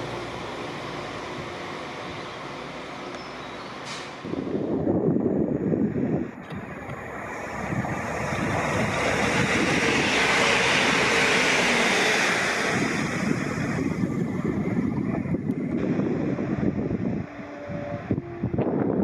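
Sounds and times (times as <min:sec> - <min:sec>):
train passing at speed: 0:00.0 - 0:19.0.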